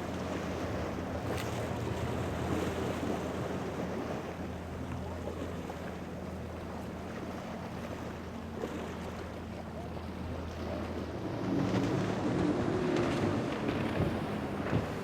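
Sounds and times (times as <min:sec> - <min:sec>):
boat engine humming: 0:00.0 - 0:15.0
water rushing: 0:00.0 - 0:15.0
waves: 0:00.0 - 0:15.0
wind: 0:00.0 - 0:15.0.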